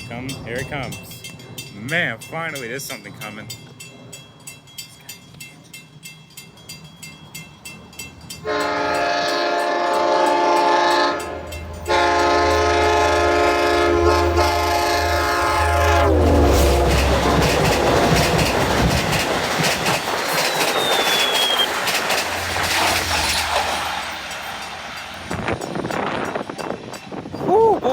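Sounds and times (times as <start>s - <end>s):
train cars clattering past: 0.0s - 27.5s
diesel locomotive engine rumble: 0.0s - 27.9s
train horn blasts: 8.4s - 18.1s.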